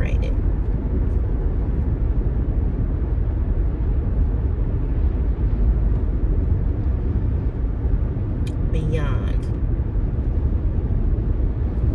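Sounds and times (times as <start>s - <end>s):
car engine rumble: 0.0s - 11.9s
road noise inside car: 0.0s - 11.9s.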